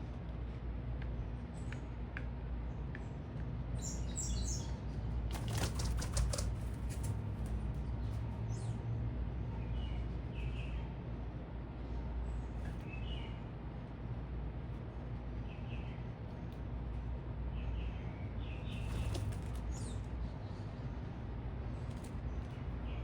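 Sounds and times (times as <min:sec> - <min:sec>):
bird wingbeats: 0:05.2 - 0:07.8, 0:18.7 - 0:20.1.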